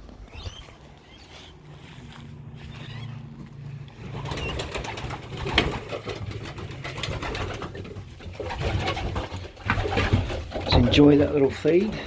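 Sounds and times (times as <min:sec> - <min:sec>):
birds pecking at feed: 0:00.0 - 0:12.0
pigeons cooing: 0:02.6 - 0:12.0.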